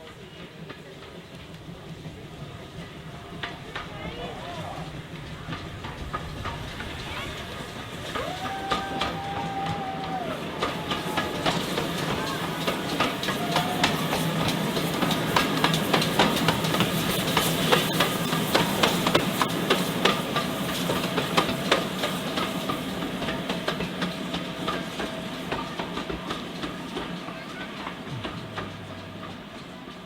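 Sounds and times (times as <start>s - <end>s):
low train rumble: 0.0s - 30.0s
train wheels clattering on rails: 0.0s - 30.0s.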